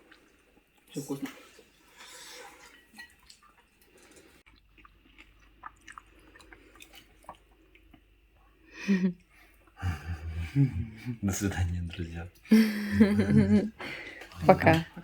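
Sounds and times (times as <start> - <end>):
person chewing and biting bread: 4.5 - 8.2.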